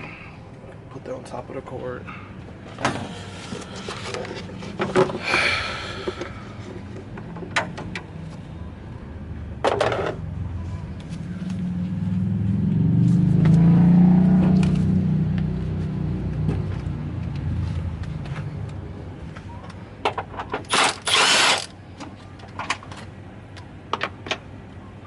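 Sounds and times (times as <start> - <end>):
low vehicle drone: 0.0 - 25.0
tools and parts clanking: 2.7 - 8.1, 9.6 - 10.2, 20.0 - 23.1.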